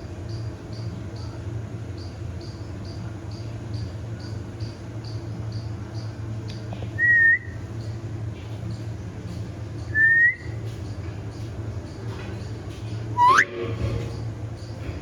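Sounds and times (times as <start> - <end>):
short high whistles: 13.2 - 13.7.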